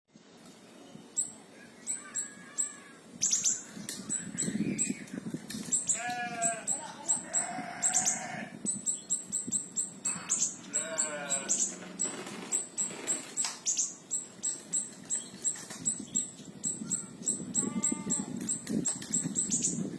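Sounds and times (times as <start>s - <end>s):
high-pitched bird calls: 1.2s - 19.9s
lower wavering bleat: 5.9s - 8.6s, 10.0s - 11.8s, 17.0s - 18.4s.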